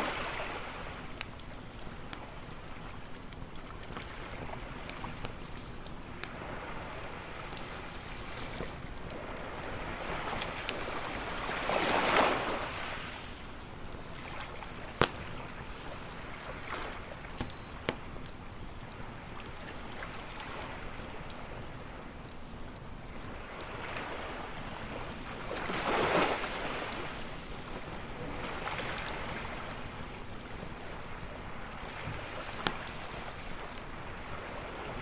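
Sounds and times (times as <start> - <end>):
campfire crackling and popping: 0.0 - 35.0
ocean waves washing on shore: 0.0 - 35.0.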